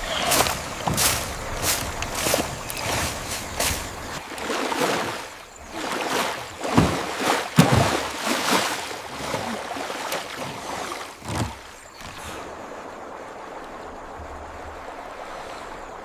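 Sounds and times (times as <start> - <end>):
heavy splashes: 0.0 - 16.0
water splashing and swishing: 0.0 - 16.0.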